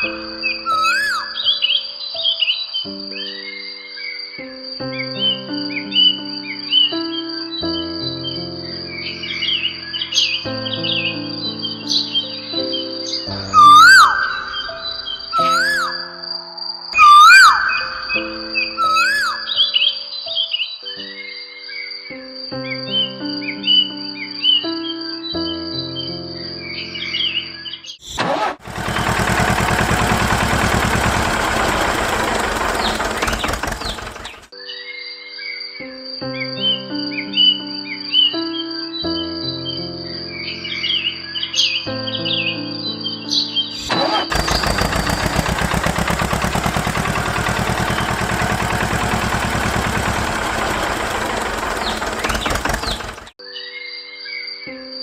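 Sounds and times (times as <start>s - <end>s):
tractor engine starting and running: 28.0s - 34.5s, 43.8s - 53.4s.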